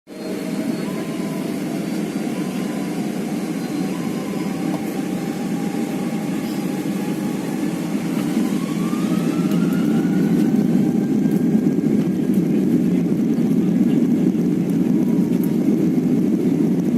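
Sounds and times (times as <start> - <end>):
engine whine rising in pitch: 0.1 - 13.5
airliner engines rumbling: 0.1 - 16.9.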